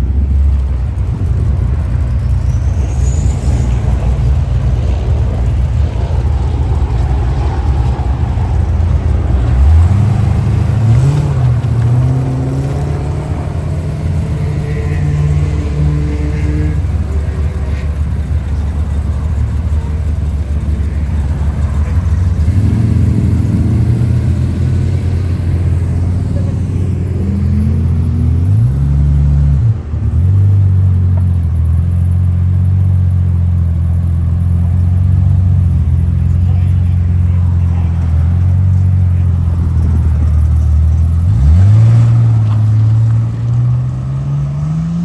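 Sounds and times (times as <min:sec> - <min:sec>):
car engine idling and revving: 0:00.0 - 0:45.0.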